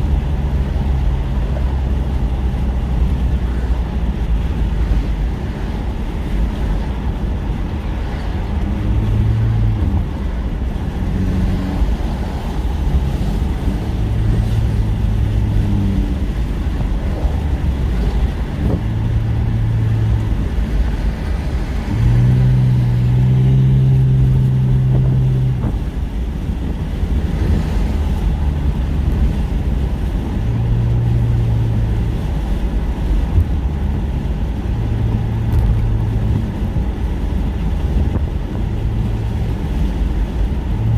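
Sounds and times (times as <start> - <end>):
engine drone: 0.0 - 40.9
road and engine rumble: 0.0 - 40.9.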